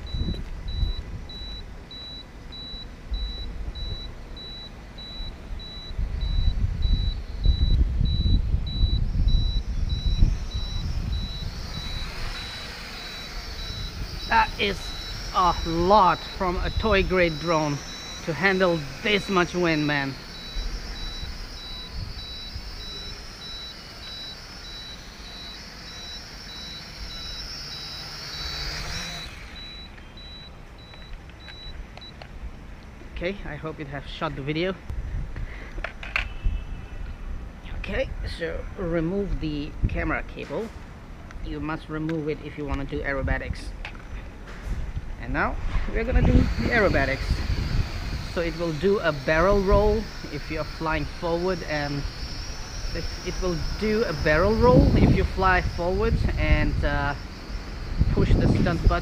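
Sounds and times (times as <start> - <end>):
wind buffeting microphone: 0.0 - 17.9, 34.9 - 35.6, 44.6 - 59.0
high electronic beep: 0.0 - 32.2, 48.2 - 59.0
drone propellers whining: 0.0 - 32.4, 44.0 - 59.0.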